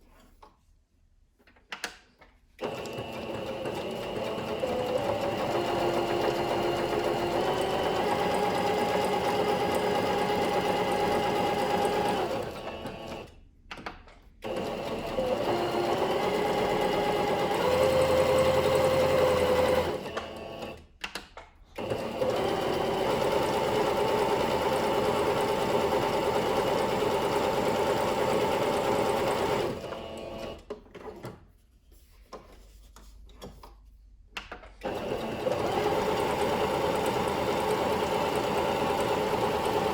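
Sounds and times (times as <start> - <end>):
sewing machine running: 2.6 - 13.4, 14.4 - 20.9, 21.8 - 30.7, 34.8 - 39.9.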